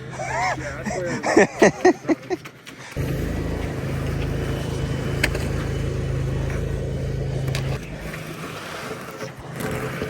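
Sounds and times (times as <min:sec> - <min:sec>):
vehicle engine running: 0:03.0 - 0:08.1.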